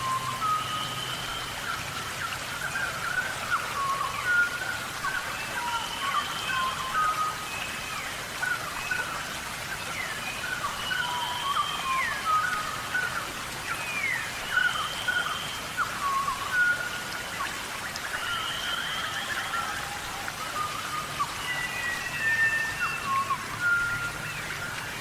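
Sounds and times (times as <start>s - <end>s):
rain falling: 0.0s - 25.0s
animal whistles and calls: 10.0s - 25.0s.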